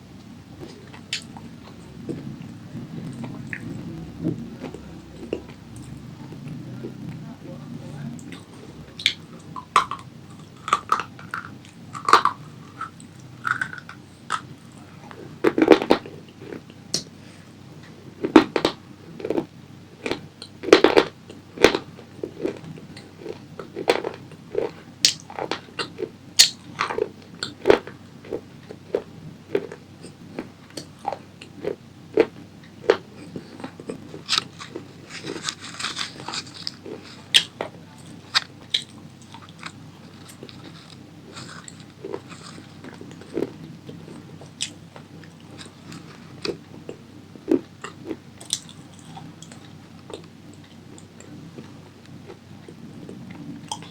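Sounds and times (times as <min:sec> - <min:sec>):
crunching and chewing food: 0:00.2 - 0:53.9.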